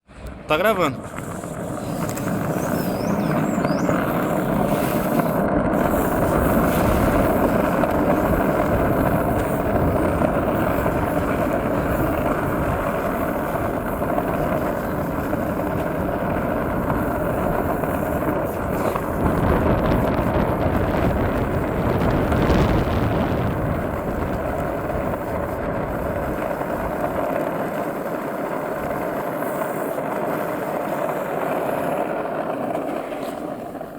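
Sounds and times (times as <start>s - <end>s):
wheels rolling on asphalt: 0.0s - 33.9s
wind on microphone: 0.0s - 33.9s.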